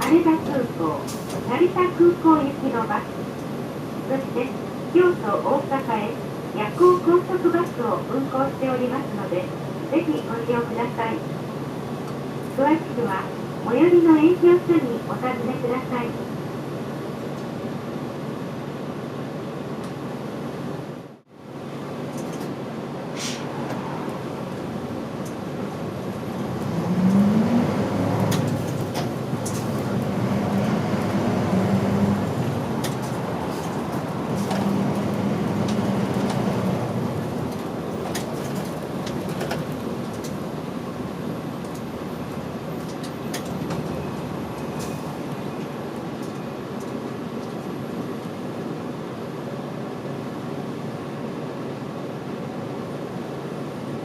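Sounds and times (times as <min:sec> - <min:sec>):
rattles and clicks from bus body: 0:00.0 - 0:02.0, 0:02.6 - 0:08.0, 0:11.3 - 0:12.6, 0:16.6 - 0:18.4, 0:19.4 - 0:21.0, 0:21.8 - 0:48.6
bus engine droning: 0:00.0 - 0:54.0.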